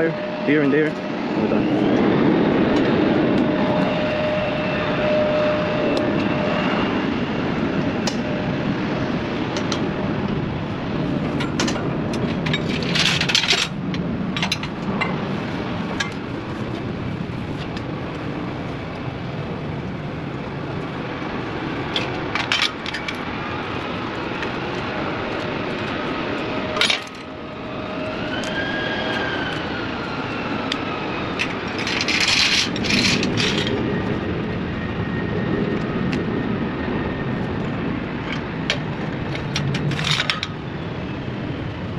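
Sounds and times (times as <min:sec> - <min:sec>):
engines rumbling: 0:00.0 - 0:41.9
hand tools clinking: 0:11.3 - 0:13.8, 0:26.8 - 0:27.3, 0:31.4 - 0:33.8.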